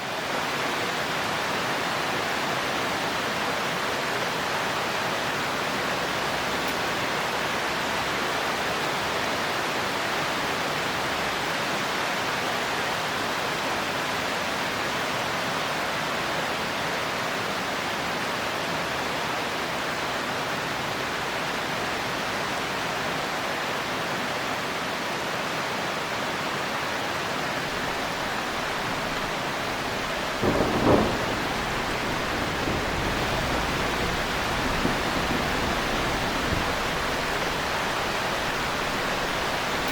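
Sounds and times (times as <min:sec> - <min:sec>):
heavy rain falling: 0:00.0 - 0:39.9
loud thunderclap: 0:27.7 - 0:39.9.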